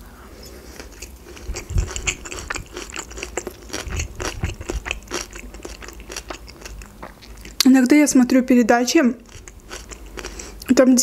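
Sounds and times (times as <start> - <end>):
person chewing food: 0.3 - 7.7, 9.2 - 10.7
mouth clicks and smacks: 0.8 - 8.0.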